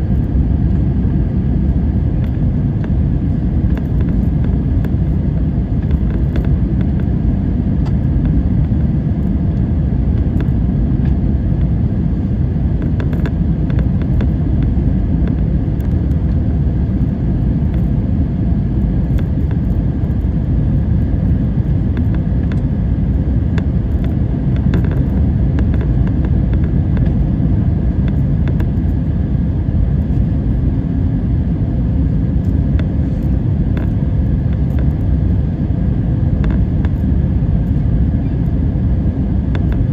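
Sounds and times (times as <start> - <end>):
airliner engines rumbling: 0.0 - 39.9.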